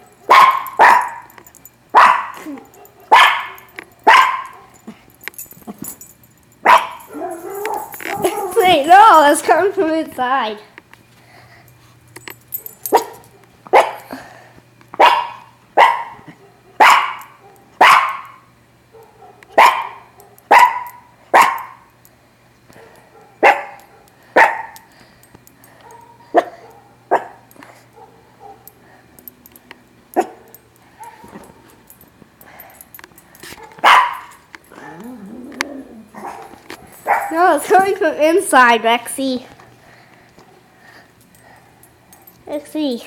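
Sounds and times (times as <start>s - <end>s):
steady low hum: 0.0s - 43.0s
dog barking: 0.3s - 1.3s, 2.0s - 4.8s, 6.6s - 8.7s, 12.9s - 14.1s, 15.0s - 21.8s, 22.8s - 24.8s, 25.8s - 28.7s, 33.6s - 34.3s, 36.2s - 37.4s.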